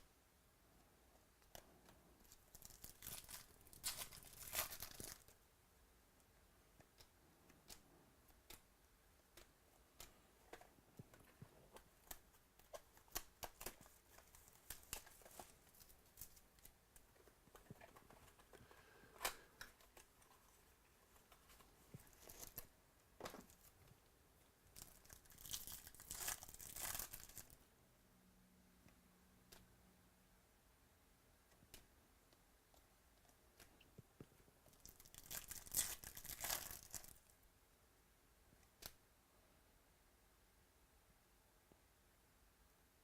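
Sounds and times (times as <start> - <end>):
foil wrapper crinkling and tearing: 2.3 - 5.3, 24.8 - 27.6, 34.8 - 37.2.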